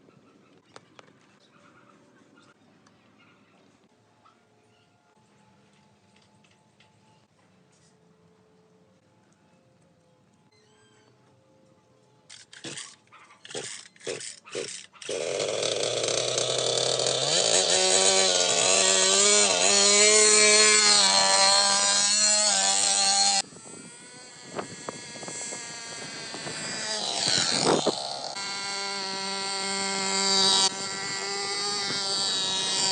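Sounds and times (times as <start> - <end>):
minibike engine buzzing: 12.3 - 32.9.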